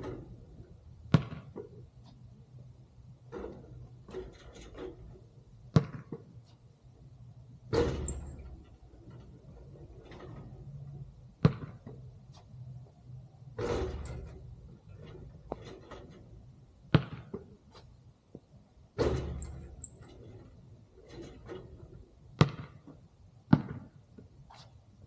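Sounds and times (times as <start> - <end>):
basketball thuds: 1.0 - 1.9, 3.2 - 6.4, 11.3 - 12.1, 13.6 - 17.8, 19.0 - 20.4, 22.3 - 24.0
noisy ball hits: 1.1 - 1.6, 5.7 - 6.3, 11.4 - 11.8, 16.9 - 17.5, 22.4 - 22.8, 23.5 - 23.9.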